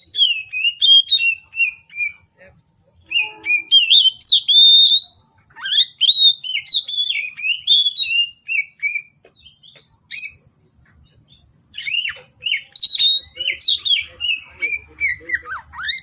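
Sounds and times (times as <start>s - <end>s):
sharp bird call: 0.0s - 2.4s, 3.0s - 10.5s, 11.7s - 16.0s
bird singing whistled phrases: 0.0s - 10.6s, 11.3s - 16.0s
steady high-pitched tone: 3.0s - 4.2s.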